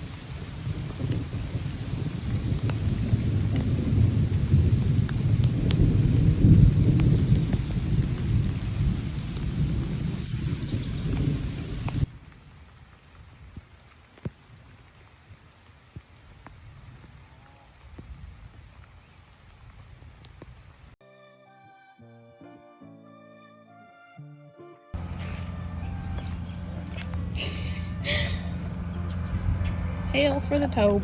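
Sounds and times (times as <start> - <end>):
thunder rumbling: 0.0 - 13.7
raindrops tapping: 0.0 - 21.0
steady rain: 0.0 - 21.0.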